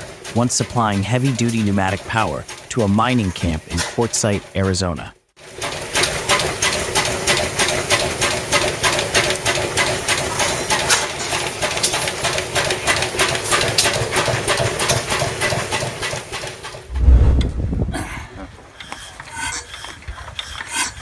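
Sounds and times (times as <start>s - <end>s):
diesel engine knocking sharply: 5.5s - 16.9s.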